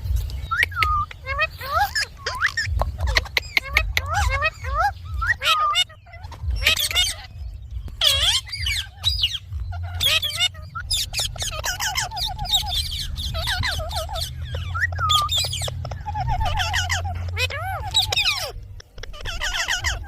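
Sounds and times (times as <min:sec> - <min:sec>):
steady low hum: 0:00.0 - 0:20.0
parrot squawking and whistling: 0:00.4 - 0:20.0.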